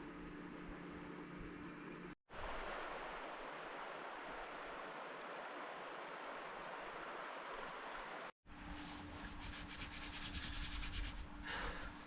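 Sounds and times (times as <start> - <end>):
faint steady hum: 0.0 - 12.0
river flowing: 2.3 - 8.4.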